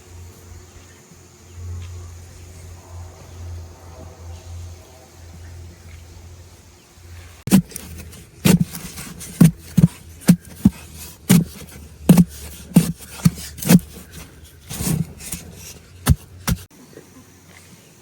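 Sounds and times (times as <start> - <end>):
blade chopping with dull thuds: 7.5 - 16.7.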